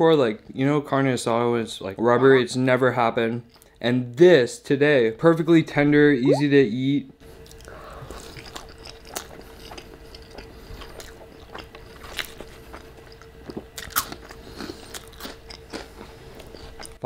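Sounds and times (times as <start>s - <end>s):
crunchy snack chewing: 7.5s - 17.0s.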